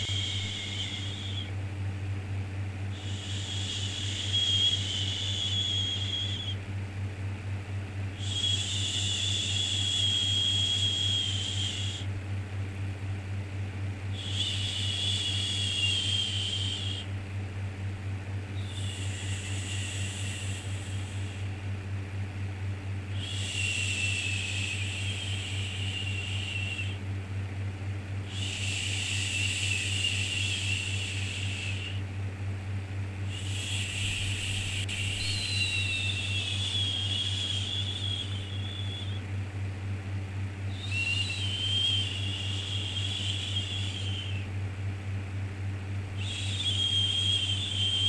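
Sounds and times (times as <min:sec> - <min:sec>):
low hum: 0:33.2 - 0:40.2.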